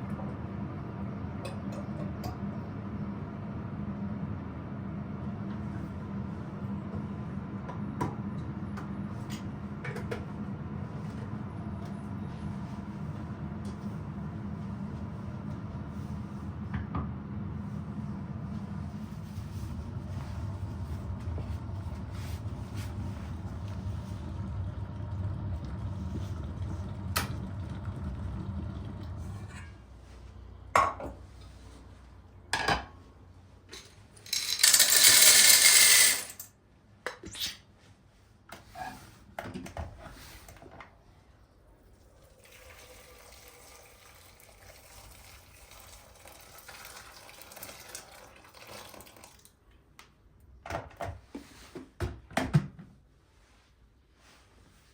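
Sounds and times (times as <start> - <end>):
low steady hum: 0.0 - 36.5
tap running: 20.8 - 29.6.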